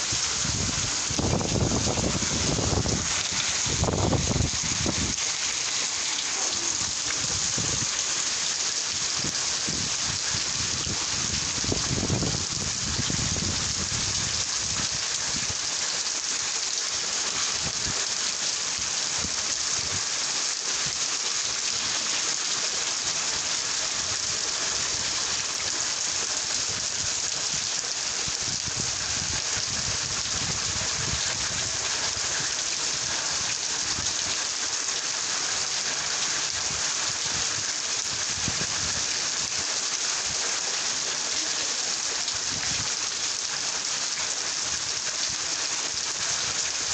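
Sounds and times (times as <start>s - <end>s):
steady rain hiss: 0.0s - 46.9s.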